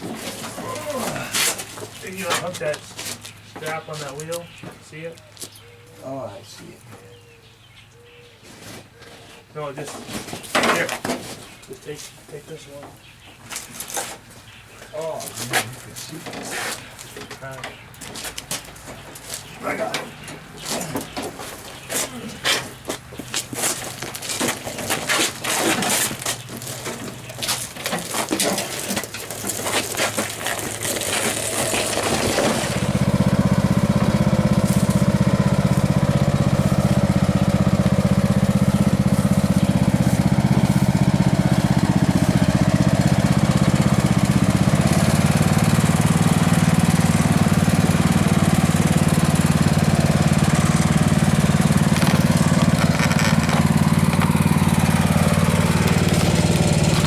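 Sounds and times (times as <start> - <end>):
riding lawn mower engine running: 0.0 - 4.9, 16.3 - 57.0.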